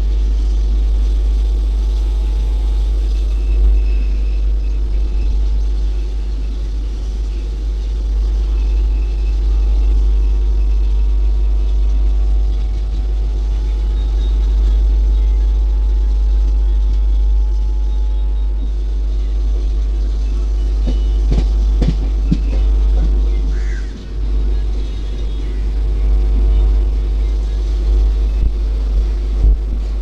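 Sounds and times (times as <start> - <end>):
train coach rumbling on track: 0.0 - 30.0
wind buffeting microphone: 18.5 - 30.0.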